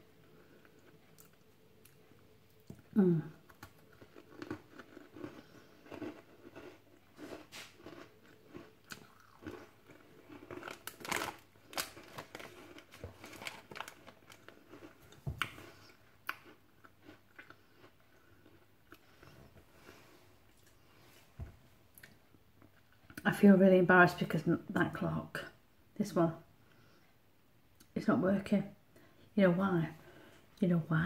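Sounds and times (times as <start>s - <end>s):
person crunching crisp snack: 0.4s - 20.9s.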